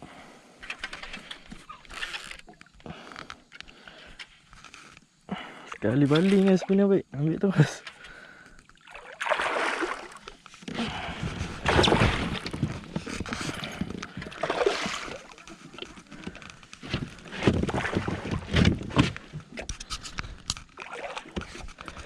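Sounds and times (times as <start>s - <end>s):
water splashing from thrashing fish: 8.7s - 10.4s, 11.0s - 12.6s, 13.5s - 16.4s, 17.3s - 18.9s, 20.7s - 22.0s.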